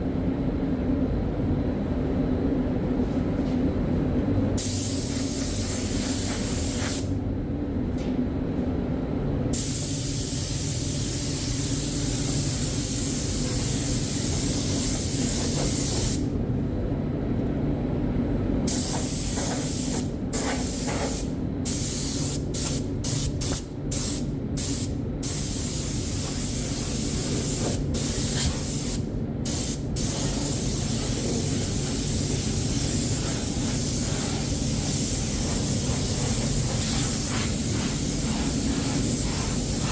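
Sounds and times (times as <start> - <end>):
steady low hum: 0.0 - 39.9
air spray gun hissing: 4.6 - 7.1, 9.6 - 16.3, 18.7 - 39.9.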